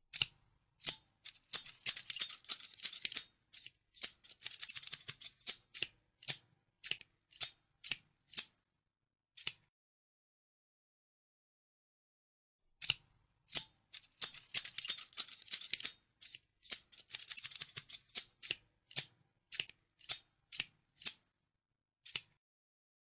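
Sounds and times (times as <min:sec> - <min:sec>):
scissors snipping: 0:00.1 - 0:08.6, 0:09.4 - 0:09.7, 0:12.8 - 0:21.2, 0:22.0 - 0:22.4.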